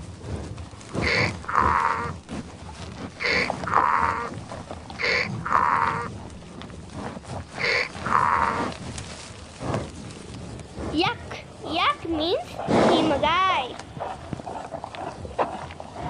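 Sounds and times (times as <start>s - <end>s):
donkey braying: 1.0s - 2.4s, 3.0s - 6.3s, 7.5s - 8.8s.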